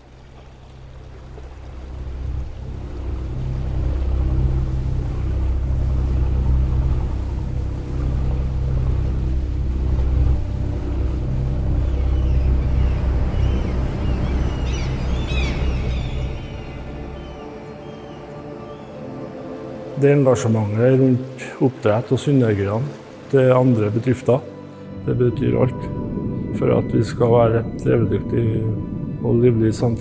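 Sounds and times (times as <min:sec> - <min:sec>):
boat engine rumbling: 0:00.0 - 0:24.4
birds calling: 0:07.0 - 0:24.2.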